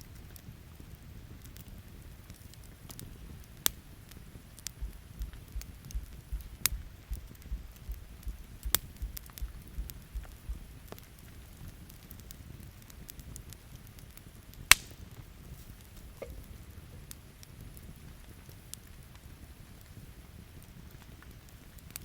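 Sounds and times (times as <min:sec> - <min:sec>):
campfire crackling and popping: 0:00.0 - 0:22.0
low thumps: 0:04.8 - 0:11.0.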